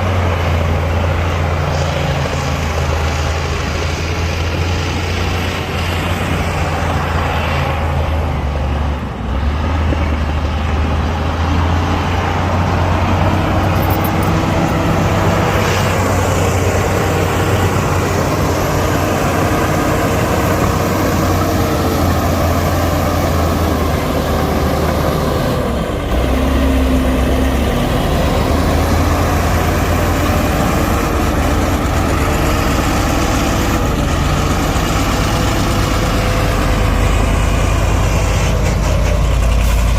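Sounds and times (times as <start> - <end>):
heavy diesel machinery engine hum: 0.0 - 39.9.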